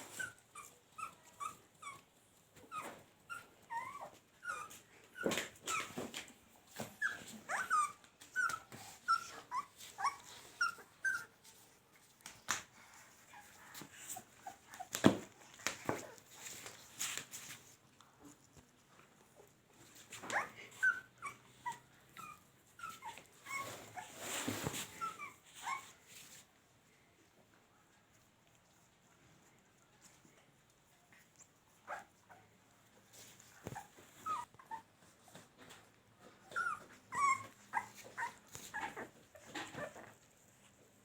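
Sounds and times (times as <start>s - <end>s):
puppies whimpering: 36.5s - 40.0s.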